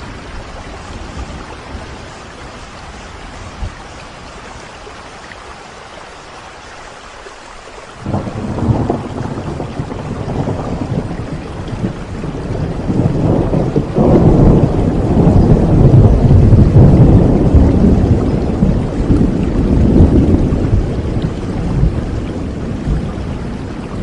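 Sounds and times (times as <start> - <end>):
steady rain: 0.0 - 24.0
thunder rumbling: 8.0 - 24.0.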